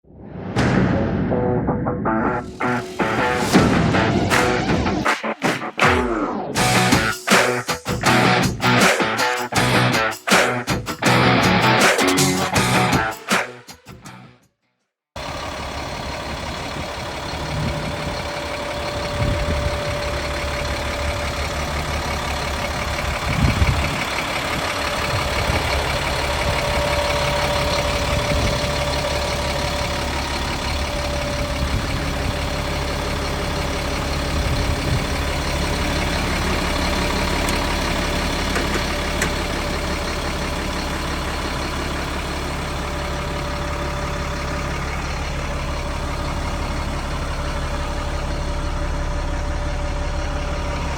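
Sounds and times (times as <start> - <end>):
loud thump: 0.1 - 5.0
diesel truck idling: 2.2 - 13.3, 15.2 - 50.9.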